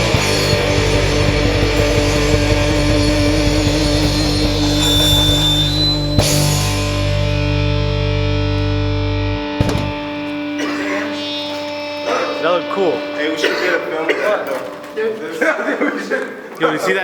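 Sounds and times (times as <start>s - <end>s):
heavy rock band playing: 0.0s - 13.6s
distorted electric guitar: 0.0s - 15.0s.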